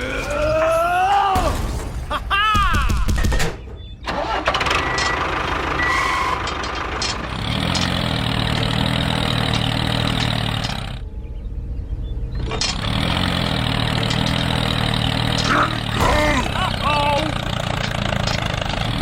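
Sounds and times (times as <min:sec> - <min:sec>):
small engine running: 0:04.4 - 0:11.0, 0:12.4 - 0:19.0.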